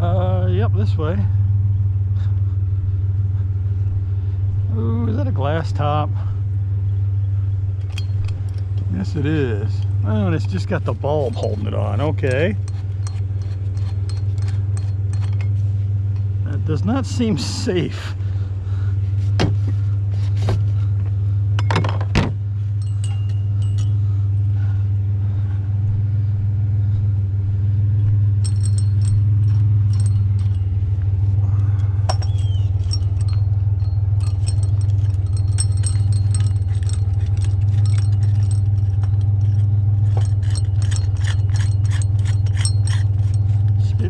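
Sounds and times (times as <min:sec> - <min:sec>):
vehicle engine idling: 0:00.0 - 0:44.0
metallic clinking and jingling: 0:07.8 - 0:16.3, 0:22.7 - 0:24.7, 0:28.1 - 0:44.0.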